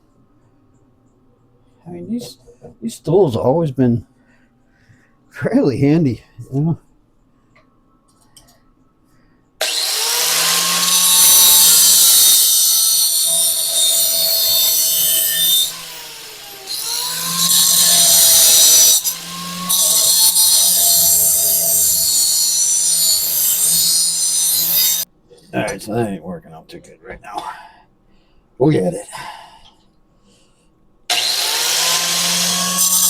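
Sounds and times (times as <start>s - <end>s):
power tool cutting metal: 9.6s - 25.1s, 31.1s - 33.0s.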